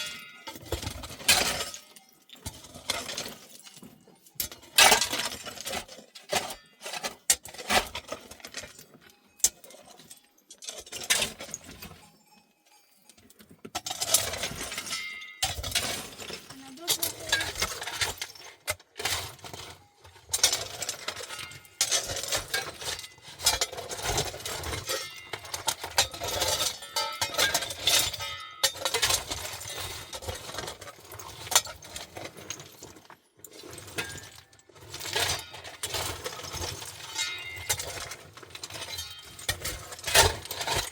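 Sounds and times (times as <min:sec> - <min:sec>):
hard objects clinking: 0:00.0 - 0:40.9
person's voice: 0:16.5 - 0:17.5.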